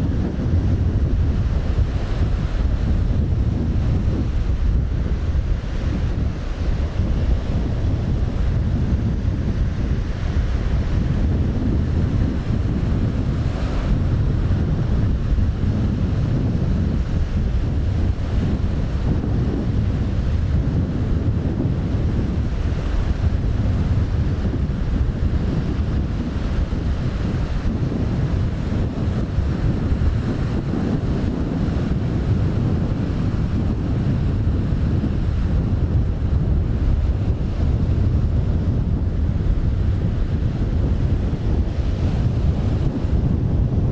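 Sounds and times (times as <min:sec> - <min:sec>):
waves on rough sea: 0:00.0 - 0:43.9
wind buffeting microphone: 0:00.0 - 0:43.9.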